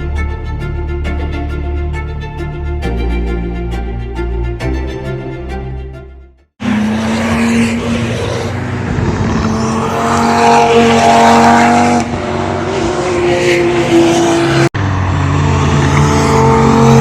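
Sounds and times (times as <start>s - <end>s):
car engine high note: 0.0s - 17.0s
tyre and road noise: 6.6s - 17.0s.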